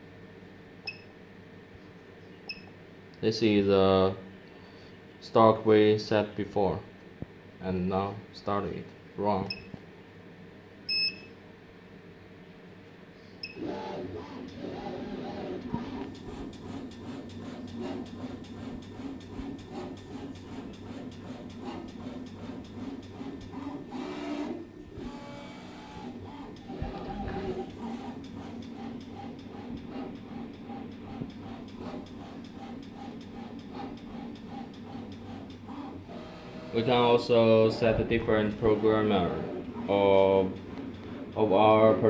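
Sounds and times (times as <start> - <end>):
stepper motor hum: 13.4 - 42.0.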